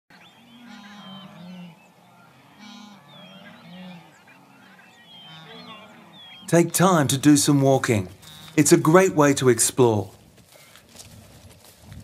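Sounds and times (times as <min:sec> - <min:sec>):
birds chirping and whistling: 0:00.1 - 0:07.3.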